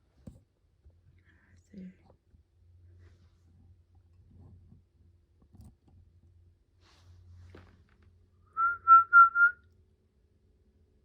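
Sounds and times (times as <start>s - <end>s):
person whistling short notes: 8.6s - 9.6s.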